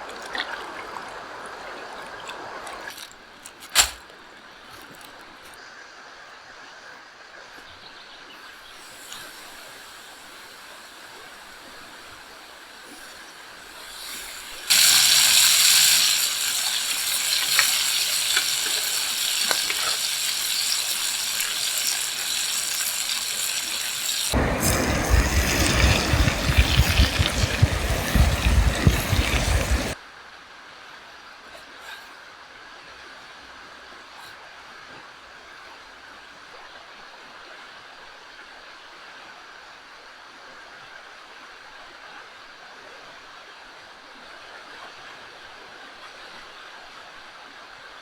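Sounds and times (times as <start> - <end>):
meat sizzling over fire: 8.9 - 30.0
rumbling noise with sharp crackles: 11.3 - 30.0.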